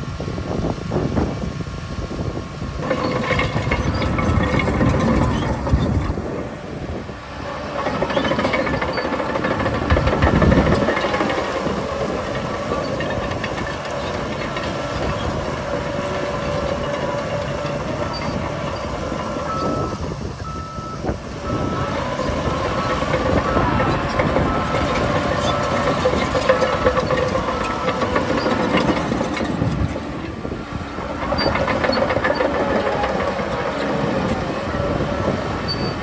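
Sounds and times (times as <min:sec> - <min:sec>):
bulldozer diesel engine under load: 0:00.0 - 0:36.0
clattering tracks: 0:02.8 - 0:20.4, 0:21.0 - 0:36.0
reversing alarm beeping: 0:18.0 - 0:28.9.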